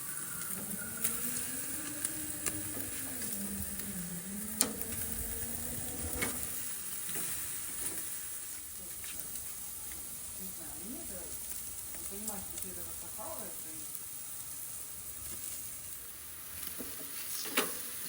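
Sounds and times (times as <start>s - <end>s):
faint wavering low tone: 0.0s - 6.6s
meat sizzling on a grill: 0.0s - 18.0s.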